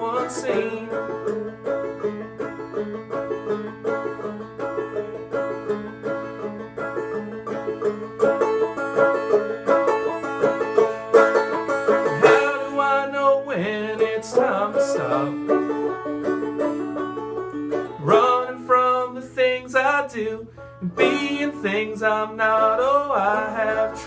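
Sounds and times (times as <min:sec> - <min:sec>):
banjo picking: 0:00.0 - 0:24.0.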